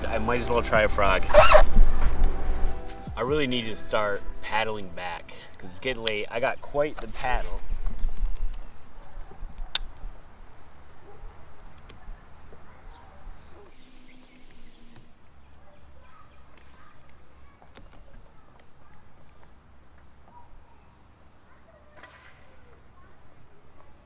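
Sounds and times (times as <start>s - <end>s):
bird giving high falling calls: 0.0s - 15.2s
low steady background: 0.0s - 16.3s.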